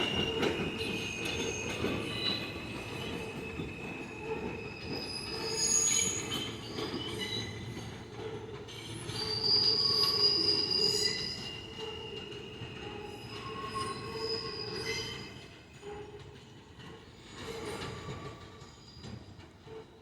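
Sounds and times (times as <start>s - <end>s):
rumble of train wheels: 0.0s - 20.0s
train wheels squealing: 0.0s - 20.0s.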